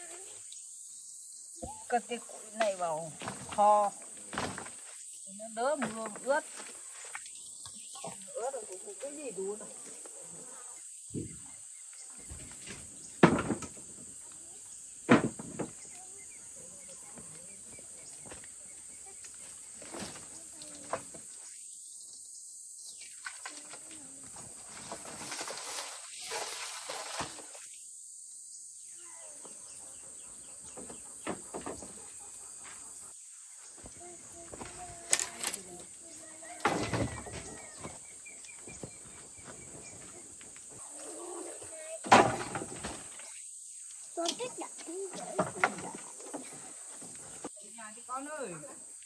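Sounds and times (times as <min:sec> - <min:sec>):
insect drone: 0:00.0 - 0:49.0
small birds chirping: 0:05.0 - 0:13.2, 0:14.1 - 0:24.1, 0:27.8 - 0:42.0
firewood knocking onto stack: 0:13.2 - 0:13.9, 0:15.1 - 0:15.8, 0:36.5 - 0:38.0, 0:42.0 - 0:43.1.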